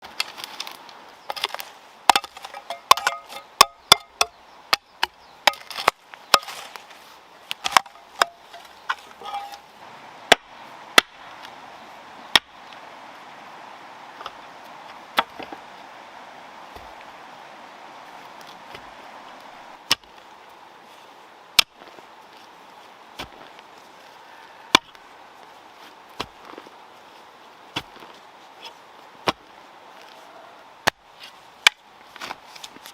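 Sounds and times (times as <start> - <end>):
blade chopping wood: 1.3 - 6.8, 7.5 - 9.6, 10.3 - 11.2, 19.8 - 20.2, 29.2 - 29.5.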